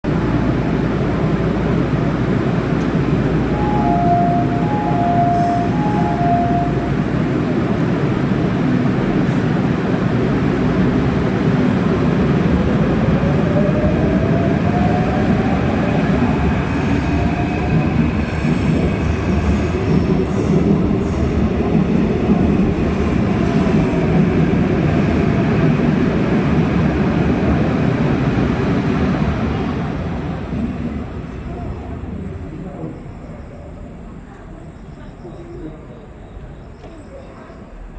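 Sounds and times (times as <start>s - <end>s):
train rumble: 0.0s - 37.9s.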